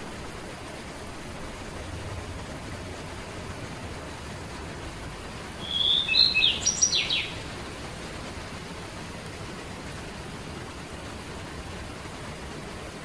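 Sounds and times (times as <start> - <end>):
background hiss: 0.0 - 13.0
songbird singing: 5.6 - 7.6.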